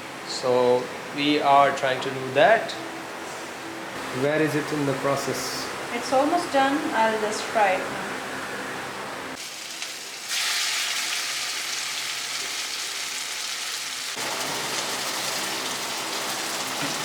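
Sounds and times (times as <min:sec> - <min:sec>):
batter sizzling in hot oil: 0:09.4 - 0:17.0.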